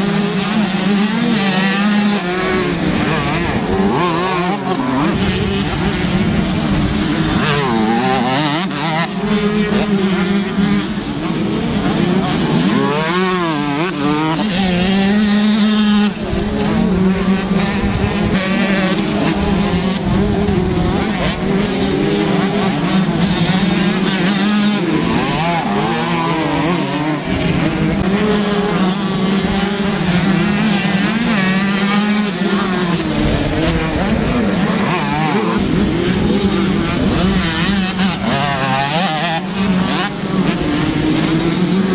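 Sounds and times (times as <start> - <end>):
motocross bike engines revving: 0.0 - 41.9.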